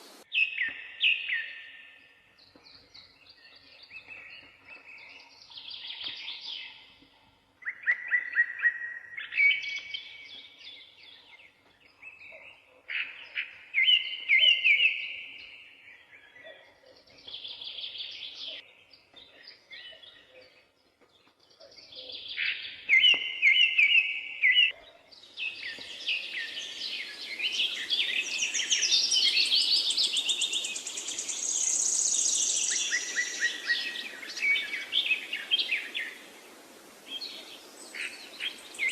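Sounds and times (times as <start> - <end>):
steady hiss: 0.0 - 0.2, 26.1 - 38.9
songbirds singing: 0.0 - 38.9.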